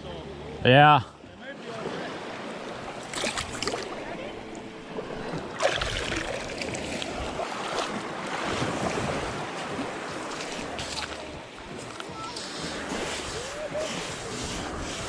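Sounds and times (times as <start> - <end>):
surf washing: 0.8 - 15.0
wind buffeting microphone: 8.4 - 15.0.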